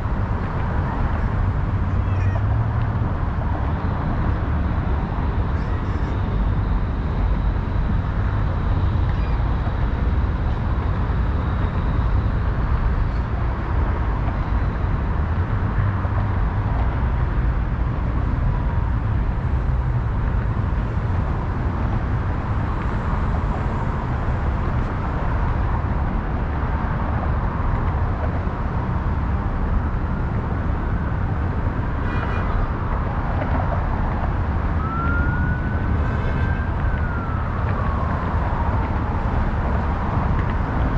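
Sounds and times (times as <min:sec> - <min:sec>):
city road traffic rumble: 0:00.0 - 0:40.9
siren rising in pitch: 0:34.8 - 0:38.7.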